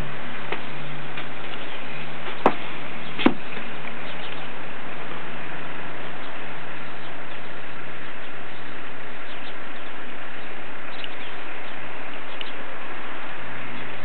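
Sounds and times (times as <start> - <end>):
low steady hum: 0.0 - 14.0
outdoor hiss: 0.0 - 14.0
faint bird chirps: 4.0 - 4.6, 6.0 - 12.7.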